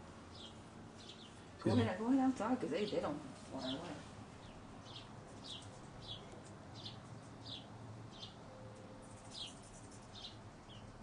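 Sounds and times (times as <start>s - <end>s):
bird chirping: 0.3s - 1.8s, 4.4s - 11.0s.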